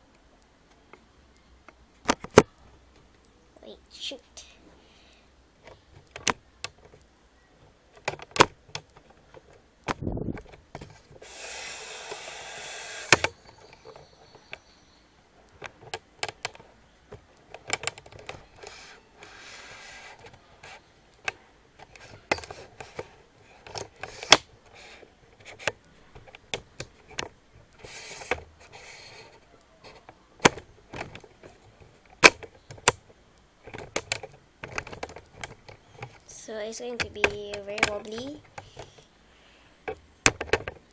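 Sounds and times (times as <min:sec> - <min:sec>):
rustling materials: 0:15.3 - 0:39.1.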